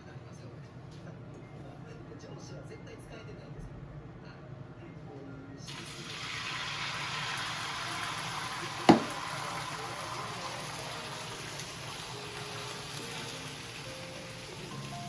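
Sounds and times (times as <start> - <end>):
running water: 5.7 - 15.0
sharp knock: 8.9 - 9.2.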